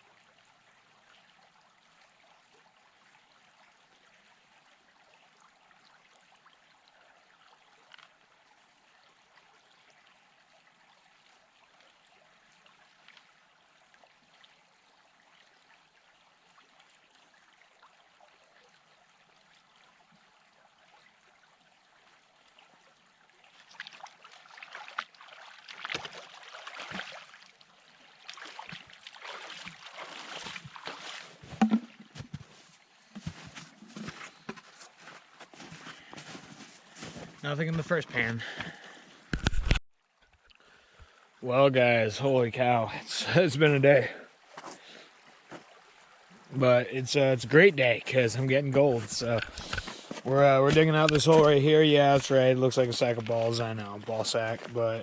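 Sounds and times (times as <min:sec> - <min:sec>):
stream trickling: 0:00.0 - 0:55.0
water sloshing and splashing: 0:04.7 - 0:08.8, 0:10.5 - 0:39.8, 0:44.4 - 0:46.6, 0:48.1 - 0:55.0.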